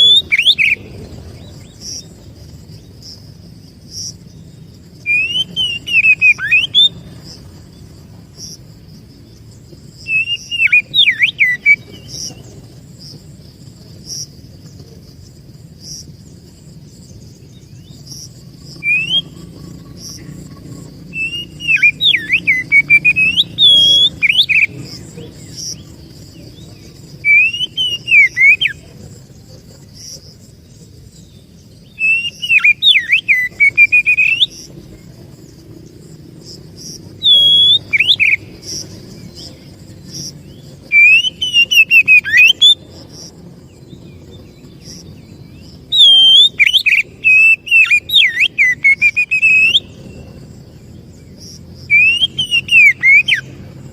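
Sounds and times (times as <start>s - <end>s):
bird singing whistled phrases: 0.0s - 1.0s, 5.0s - 7.3s, 10.0s - 12.4s, 18.8s - 19.5s, 21.1s - 25.8s, 27.1s - 28.8s, 31.9s - 34.7s, 37.2s - 39.6s, 40.9s - 42.9s, 45.4s - 50.3s, 51.9s - 53.5s.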